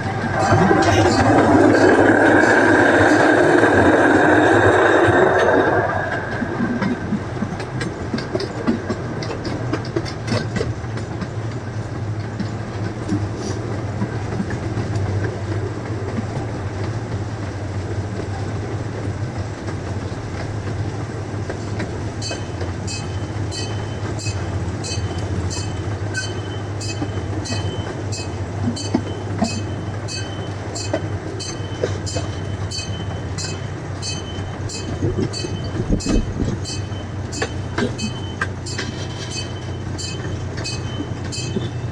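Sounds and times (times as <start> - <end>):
train engine hum: 0.0 - 41.9
wheels rolling on rails: 0.0 - 41.9
high ticking: 21.7 - 41.8
steady high tone: 22.2 - 41.8.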